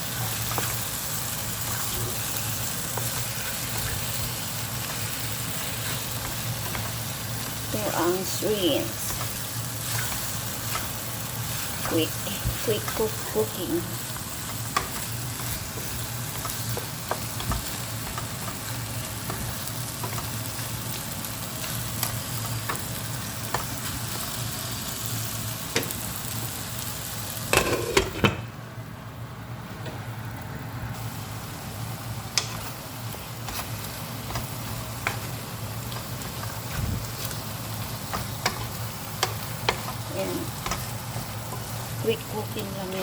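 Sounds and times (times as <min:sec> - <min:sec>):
shrimp sizzling in a frying pan: 0:00.0 - 0:28.4, 0:30.2 - 0:43.0
utensil clicking against pan: 0:38.0 - 0:41.8.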